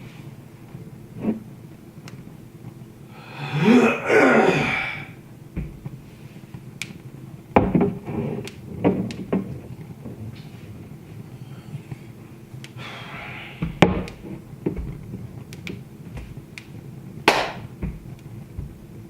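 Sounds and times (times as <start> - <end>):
wood fire crackling: 5.2 - 12.9, 14.0 - 19.0.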